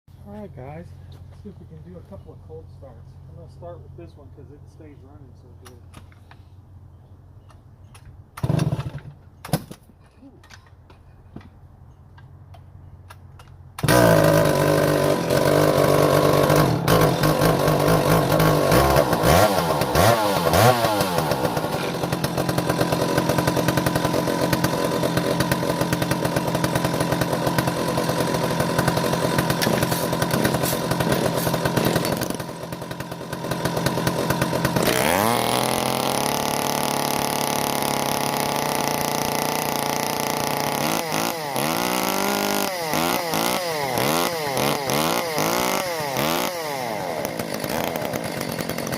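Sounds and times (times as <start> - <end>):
chainsaw engine running: 8.4 - 9.1, 13.8 - 48.9.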